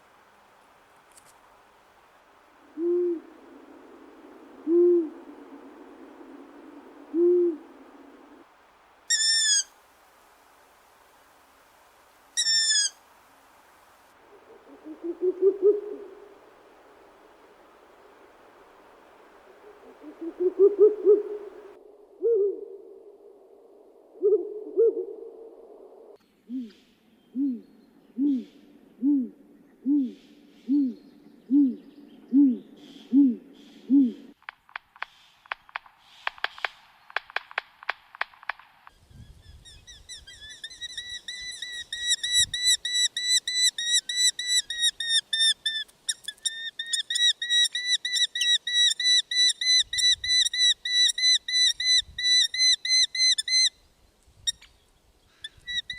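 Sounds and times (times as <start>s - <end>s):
low animal hoot: 2.7s - 6.5s, 7.1s - 8.2s, 14.3s - 16.3s, 19.5s - 23.1s, 26.5s - 34.4s.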